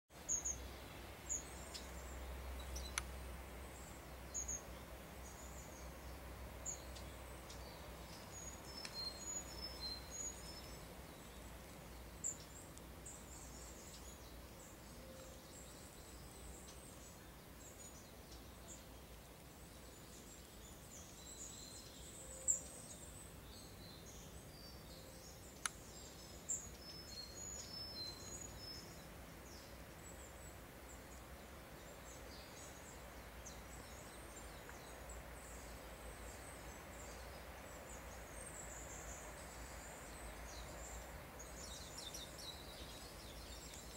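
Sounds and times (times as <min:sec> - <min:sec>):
small birds chirping: 0:00.1 - 0:43.9
sharp clicks: 0:25.6 - 0:25.8.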